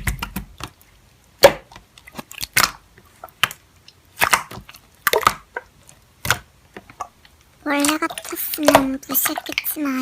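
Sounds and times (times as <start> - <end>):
slime clicking and popping: 1.4 - 9.6.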